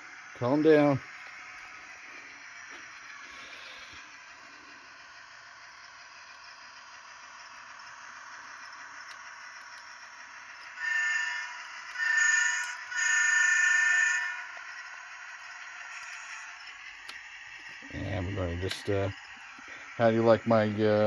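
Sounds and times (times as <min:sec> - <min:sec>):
model train horn blasts: 0:10.8 - 0:14.5.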